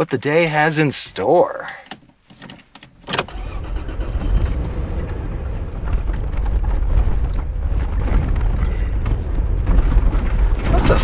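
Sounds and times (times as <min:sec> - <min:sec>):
vehicle engine and tyres rumbling: 0:03.2 - 0:11.0.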